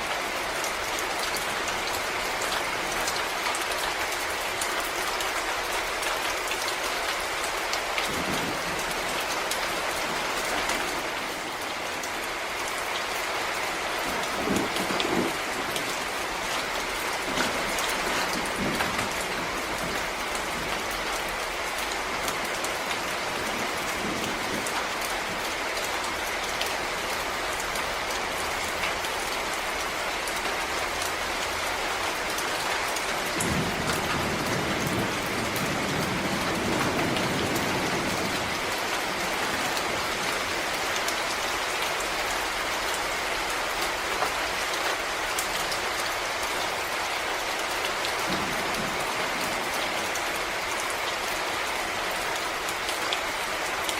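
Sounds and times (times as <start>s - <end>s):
rain falling on leaves: 0.0s - 53.9s.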